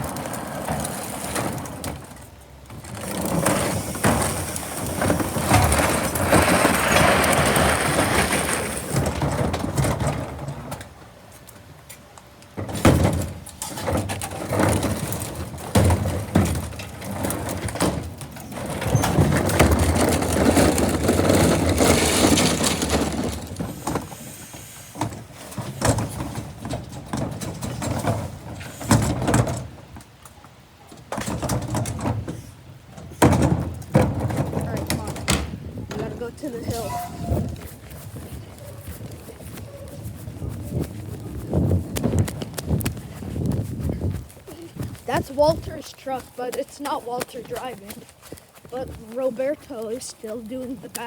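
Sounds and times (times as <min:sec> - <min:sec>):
garbage truck mechanical noise: 0:00.0 - 0:51.0
metal clanks and knocks: 0:33.0 - 0:37.7.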